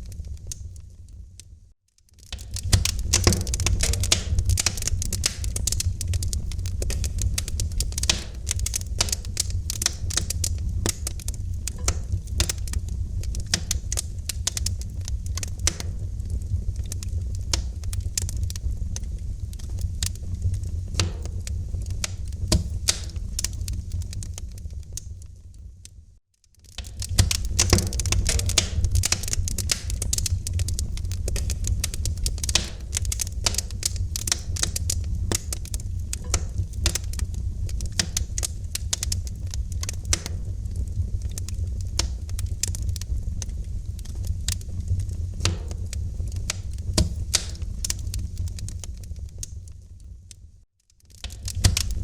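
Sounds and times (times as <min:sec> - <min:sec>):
wood fire crackling: 0:00.0 - 0:52.0.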